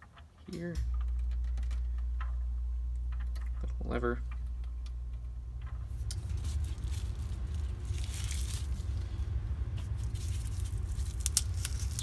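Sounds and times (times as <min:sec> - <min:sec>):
steady low hum: 0:00.0 - 0:12.0
plastic wrapping rustling: 0:05.6 - 0:12.0.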